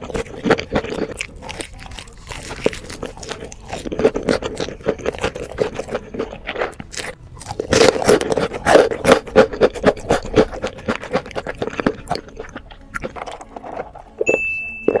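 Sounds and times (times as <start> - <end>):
crunchy chewing: 0.0 - 15.0
high steady beep: 14.2 - 15.0.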